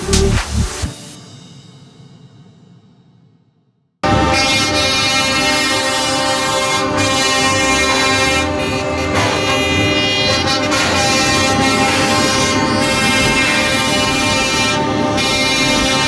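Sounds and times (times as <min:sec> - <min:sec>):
truck air horn blast: 0:04.0 - 0:16.0
truck engine rumble: 0:11.0 - 0:16.0.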